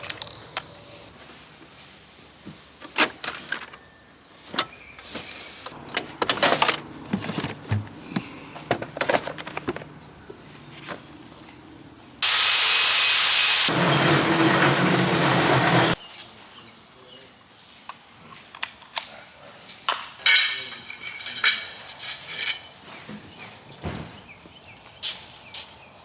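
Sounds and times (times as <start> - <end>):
loud steady hiss: 12.2 - 16.0.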